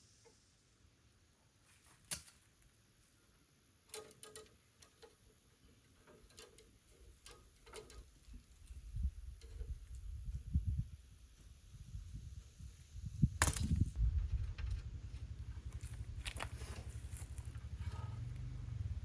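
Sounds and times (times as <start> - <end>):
low rumble: 13.8 - 19.0.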